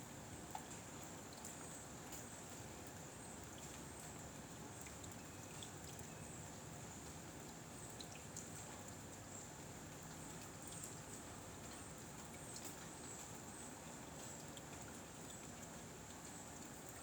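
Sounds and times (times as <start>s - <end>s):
faint outdoor background noise: 0.0s - 17.0s.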